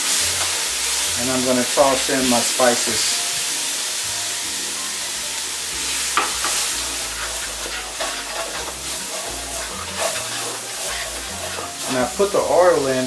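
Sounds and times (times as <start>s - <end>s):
onions sizzling in oil: 0.0s - 13.0s
utensil scraping a pot: 5.4s - 13.0s.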